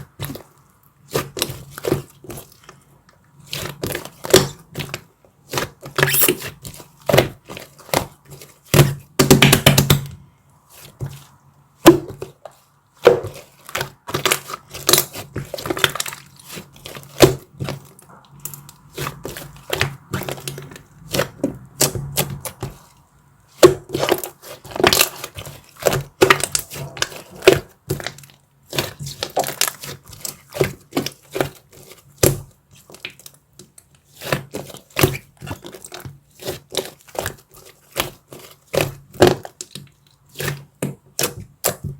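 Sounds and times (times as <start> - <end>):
chocolate cracking and crunching: 23.6 - 41.9.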